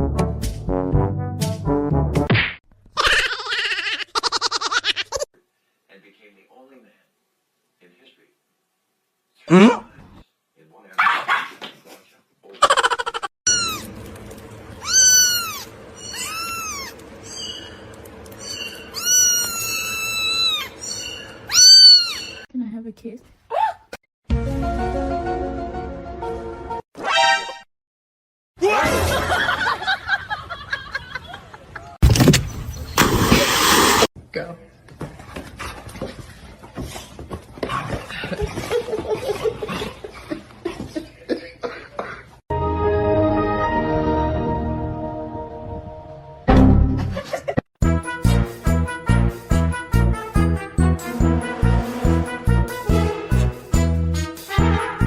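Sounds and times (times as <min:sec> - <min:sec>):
person chuckling: 0:12.6 - 0:13.3
cat meowing: 0:14.8 - 0:17.0, 0:18.9 - 0:20.8, 0:21.5 - 0:22.3.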